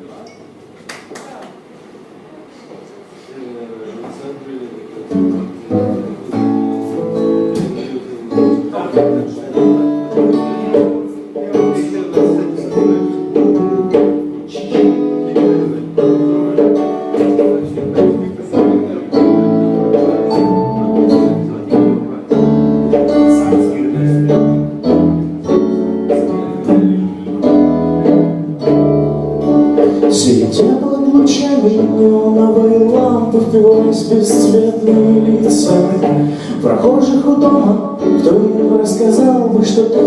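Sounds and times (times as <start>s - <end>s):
guitar strumming chords: 5.1s - 40.0s
low bass notes: 17.6s - 40.0s.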